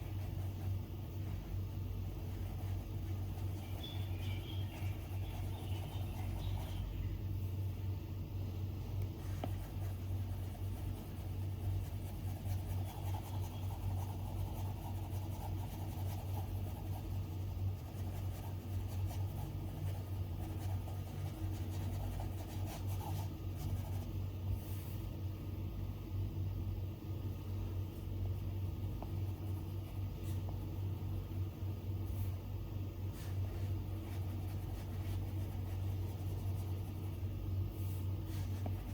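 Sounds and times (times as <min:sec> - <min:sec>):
steady low hum: 0:00.0 - 0:38.9
stylus scratching on glass screen: 0:02.1 - 0:07.0, 0:09.3 - 0:24.2, 0:33.1 - 0:37.3, 0:38.2 - 0:38.9.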